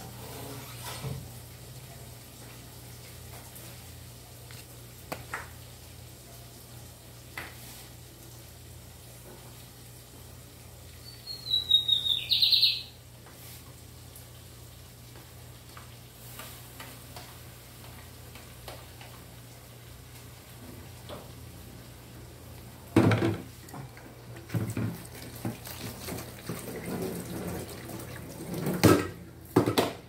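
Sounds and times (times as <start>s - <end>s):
bird whistle and chattering: 11.0s - 12.9s.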